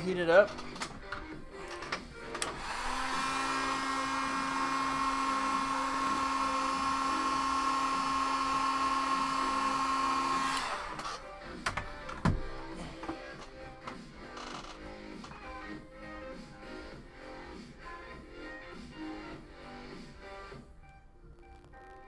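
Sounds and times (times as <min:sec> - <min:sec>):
heat gun whirring: 0:01.7 - 0:11.2.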